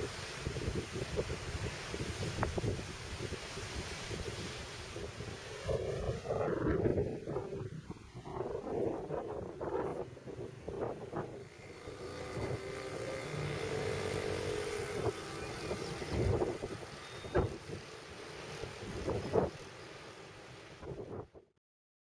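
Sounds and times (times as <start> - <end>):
wind buffeting microphone: 0.0 - 17.9, 18.5 - 19.7
droning hum: 5.6 - 17.8.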